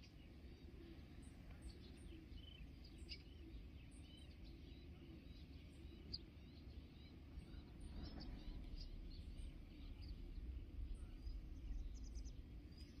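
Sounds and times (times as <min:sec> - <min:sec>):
small birds chirping: 0:00.0 - 0:13.0
low rumble: 0:07.6 - 0:13.0.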